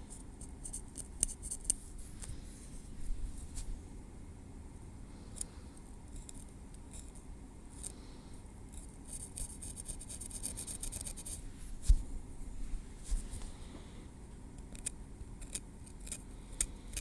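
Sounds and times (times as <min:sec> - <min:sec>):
metal tweezers scraping through hair: 0:06.1 - 0:07.9.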